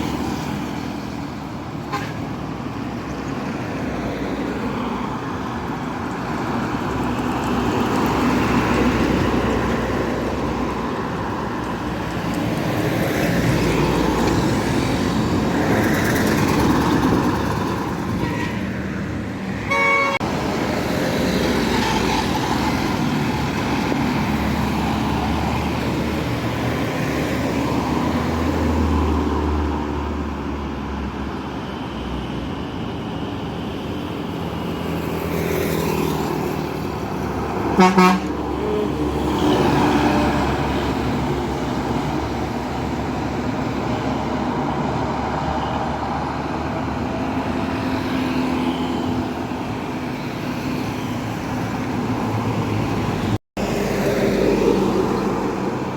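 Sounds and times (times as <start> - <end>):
heavy vehicles passing: 0.0 - 55.9
vehicle horn: 1.9 - 2.2, 18.2 - 18.7, 19.6 - 20.2, 37.8 - 38.8.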